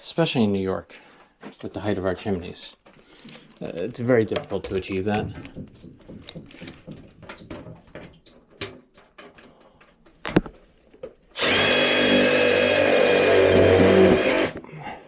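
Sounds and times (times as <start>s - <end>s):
power drill driving screw: 11.4s - 14.6s.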